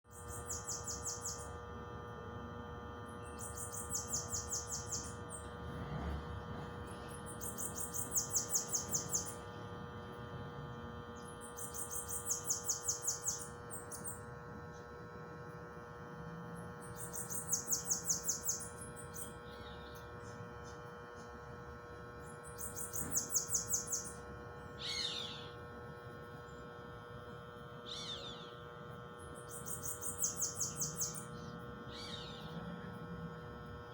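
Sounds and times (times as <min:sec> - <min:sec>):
steady hum: 0:00.1 - 0:33.9
bird singing high rapid notes: 0:03.2 - 0:05.6, 0:07.1 - 0:09.5, 0:16.8 - 0:20.8, 0:22.2 - 0:25.6, 0:27.9 - 0:28.6, 0:29.2 - 0:32.6
short falling bird calls: 0:24.8 - 0:25.6, 0:27.9 - 0:28.5.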